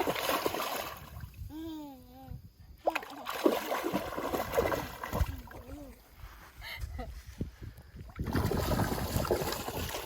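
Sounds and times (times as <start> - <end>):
water splashing in river: 0.0 - 1.3, 2.8 - 5.6, 8.2 - 10.0.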